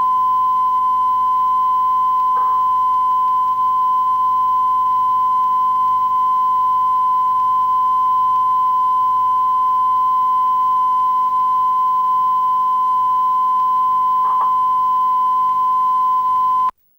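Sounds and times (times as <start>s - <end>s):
steady test tone: 0.0s - 16.7s.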